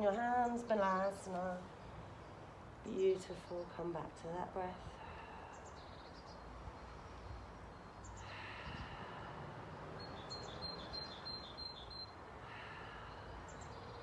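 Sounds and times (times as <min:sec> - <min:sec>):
faint low background noise: 0:00.0 - 0:14.0
bird chirping: 0:09.7 - 0:12.2, 0:13.2 - 0:14.0.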